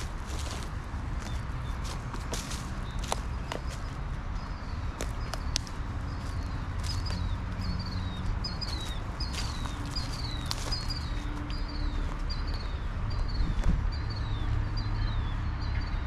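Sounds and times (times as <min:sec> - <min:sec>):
footsteps: 0:00.0 - 0:04.0, 0:04.9 - 0:12.8
bird chirping: 0:00.0 - 0:16.0.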